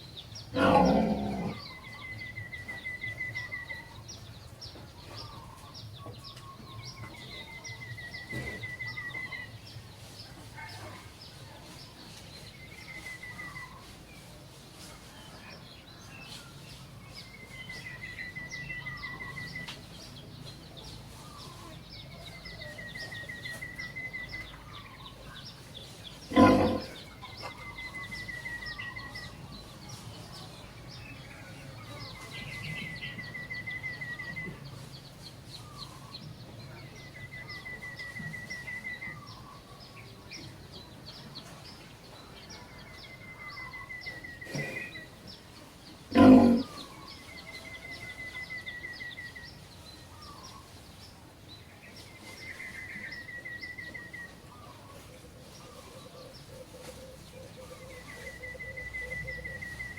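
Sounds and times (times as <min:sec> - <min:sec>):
animal trilling call: 0:46.1 - 0:46.9.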